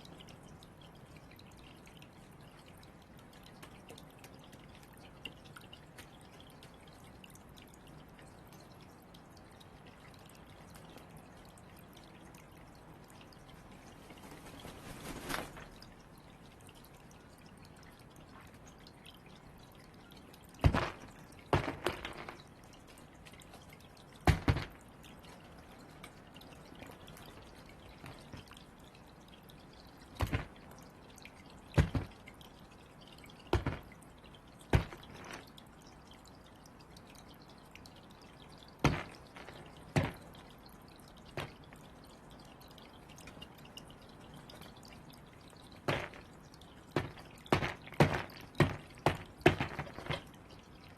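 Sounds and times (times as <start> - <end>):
crow pecking at hard ball: 38.8 - 40.3, 45.8 - 46.3, 47.0 - 50.3.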